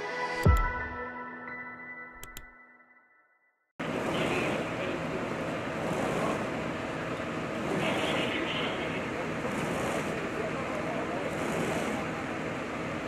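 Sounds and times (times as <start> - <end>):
vehicle engine running: 3.8 - 13.0.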